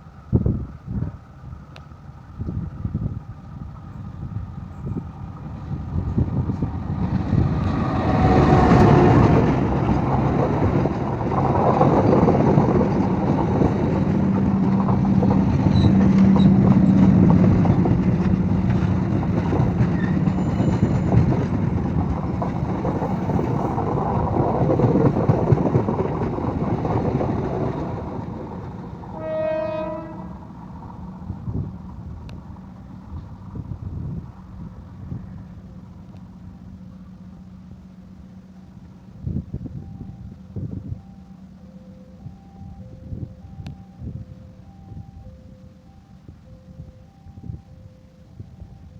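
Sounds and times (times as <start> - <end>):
train wheels clattering on rails: 4.7 - 34.2
train horn: 7.4 - 10.2, 29.1 - 31.2.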